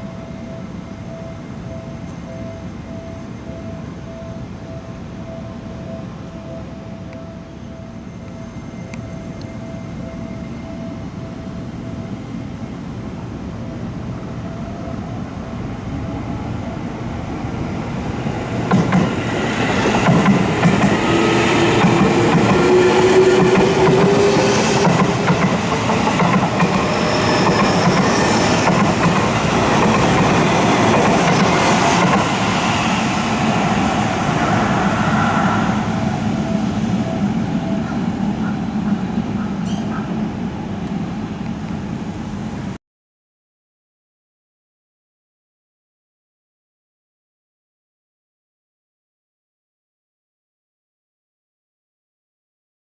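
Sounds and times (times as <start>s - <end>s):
train rising whine: 0.0s - 42.8s
train wheels clickety-clack: 18.6s - 32.8s.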